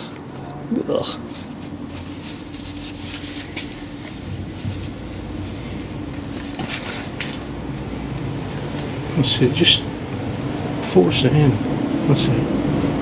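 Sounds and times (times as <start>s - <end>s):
steady low hum: 0.0s - 13.0s
scraping and rubbing handling noises: 1.1s - 9.2s.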